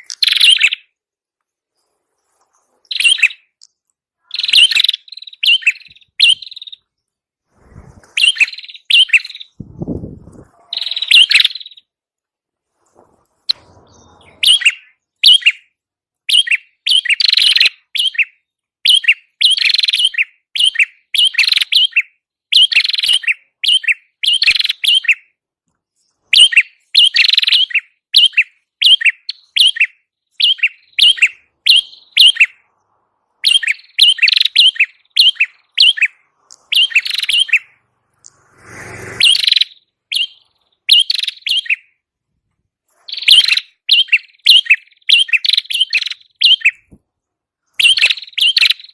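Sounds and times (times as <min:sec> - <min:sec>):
bird sharp high chirps: 0:00.0 - 0:01.0, 0:01.7 - 0:07.2, 0:08.0 - 0:12.0, 0:13.4 - 0:42.0, 0:42.9 - 0:47.0, 0:47.6 - 0:48.9
brief rushing noise: 0:12.8 - 0:14.8, 0:37.8 - 0:39.6.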